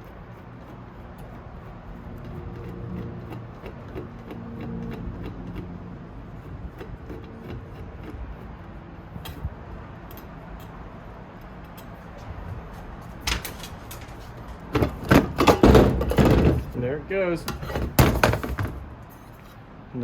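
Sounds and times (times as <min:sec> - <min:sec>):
tools and metal parts clicking: 0:10.0 - 0:10.8, 0:11.4 - 0:12.0, 0:13.2 - 0:16.8, 0:17.4 - 0:19.6
loud knocks: 0:14.7 - 0:16.8, 0:17.6 - 0:18.9.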